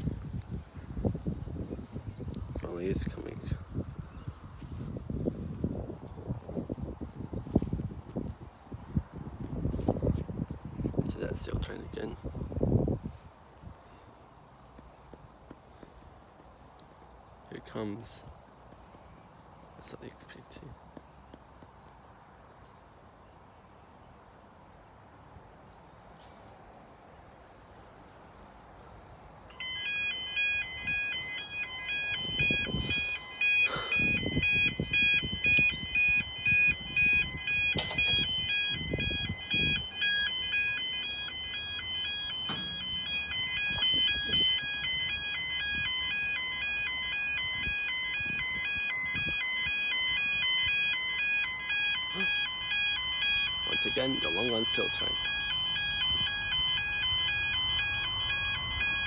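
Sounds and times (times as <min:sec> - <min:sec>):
level crossing two-tone alarm: 0:29.5 - 0:59.0.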